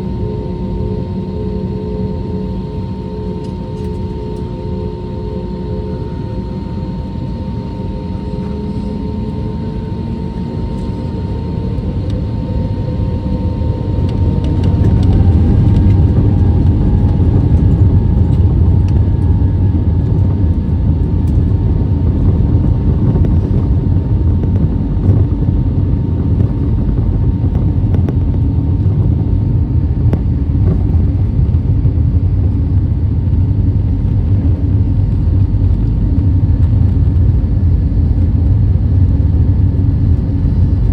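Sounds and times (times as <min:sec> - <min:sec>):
jet engines spooling up: 0:07.9 - 0:25.4.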